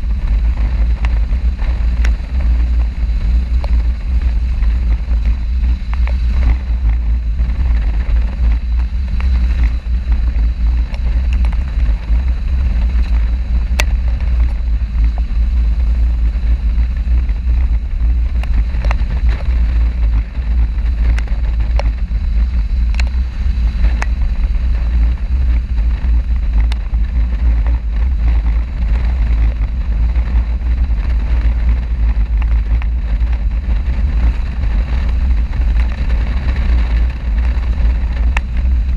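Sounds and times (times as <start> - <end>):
motorcycle vehicle noise: 0.0 - 38.9
wind rumble on microphone: 0.0 - 38.9
faint ticks: 22.9 - 23.2.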